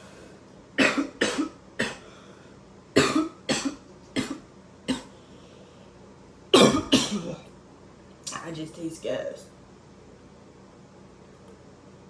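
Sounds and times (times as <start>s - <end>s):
man coughing hard: 0.8s - 2.1s, 3.0s - 5.1s, 6.5s - 7.4s.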